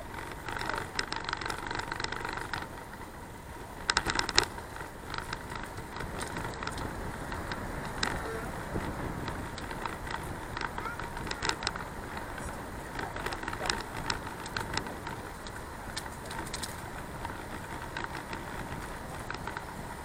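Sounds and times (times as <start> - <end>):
bicycle clicks and rattles: 0.0 - 20.0
bicycle riding rushing noise: 0.0 - 20.0.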